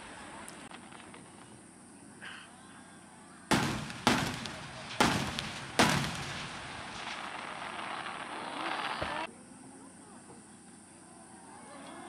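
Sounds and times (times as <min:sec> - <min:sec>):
firework shells booming: 0:03.5 - 0:09.3.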